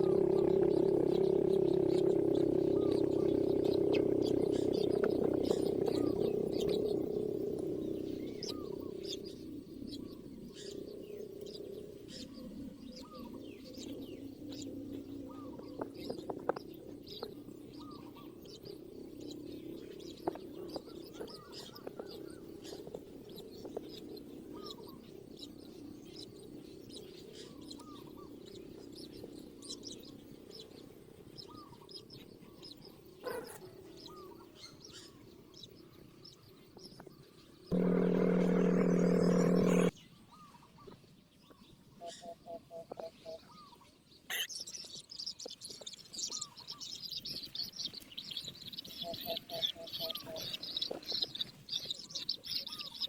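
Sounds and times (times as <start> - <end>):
small birds chirping: 0.0 - 53.0
low steady hum: 37.7 - 39.9.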